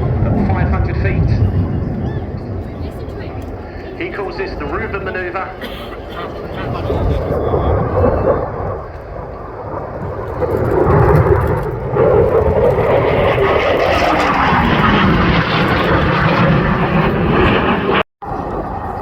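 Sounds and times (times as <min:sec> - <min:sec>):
jet passing low: 0:00.0 - 0:19.0.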